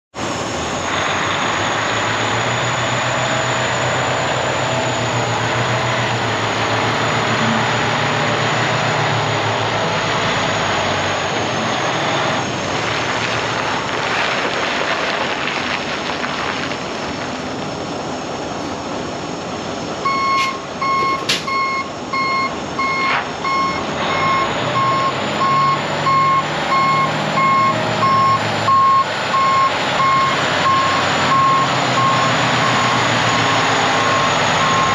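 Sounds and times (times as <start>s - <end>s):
diesel truck engine running: 0.1s - 34.9s
backup alarm beeping: 20.0s - 33.0s.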